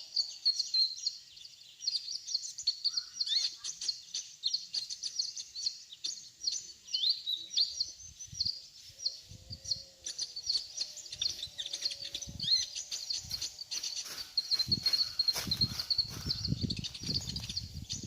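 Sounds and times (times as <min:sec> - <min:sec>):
sunbird chirps and twitters: 0:00.0 - 0:18.0.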